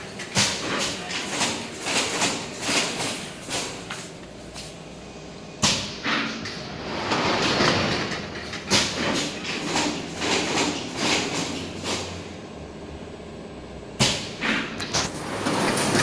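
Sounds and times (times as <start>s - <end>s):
machine clattering: 0.0s - 4.1s, 5.6s - 12.3s, 14.0s - 16.0s.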